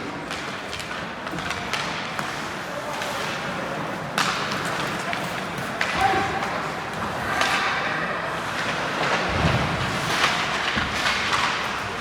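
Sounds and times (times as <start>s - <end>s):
sports arena crowd ambience: 0.0s - 12.0s.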